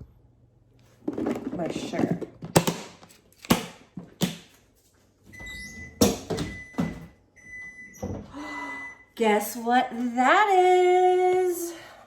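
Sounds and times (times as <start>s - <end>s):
kitchen items handled: 0.9s - 4.7s.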